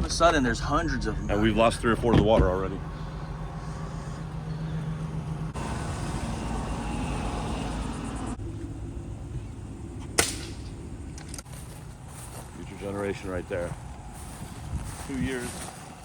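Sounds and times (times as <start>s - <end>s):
steady low rumble: 0.0s - 16.0s
sharp loud crack: 10.2s - 10.7s.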